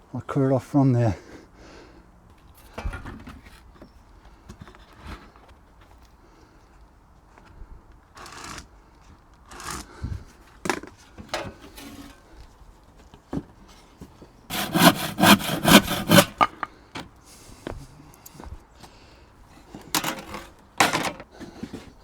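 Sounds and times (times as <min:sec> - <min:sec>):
hand saw cutting wood: 0:14.5 - 0:16.5.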